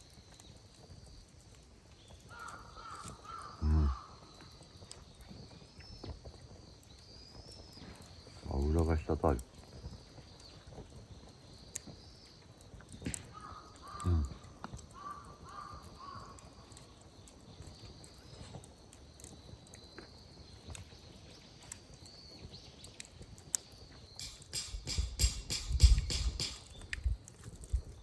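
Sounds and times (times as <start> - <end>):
campfire crackling: 0.0 - 28.0
crow cawing: 2.3 - 4.3, 13.3 - 16.6.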